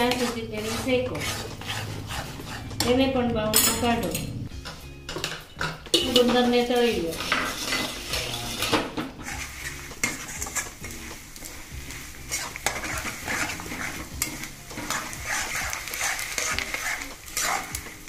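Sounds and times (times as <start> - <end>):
spatula scraping a pan: 0.0 - 3.1, 6.0 - 18.0
gum sizzling in hot oil: 6.6 - 18.0.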